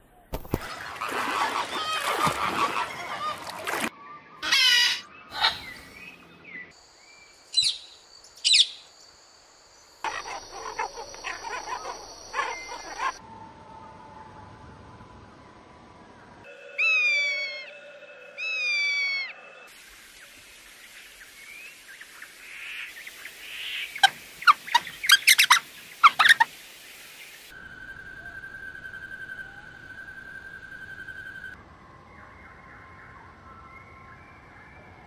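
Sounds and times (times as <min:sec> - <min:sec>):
bird squawks and chirps: 0:04.4 - 0:05.8, 0:10.0 - 0:13.2, 0:23.5 - 0:26.5
high bird trill: 0:10.0 - 0:13.2, 0:16.5 - 0:19.4.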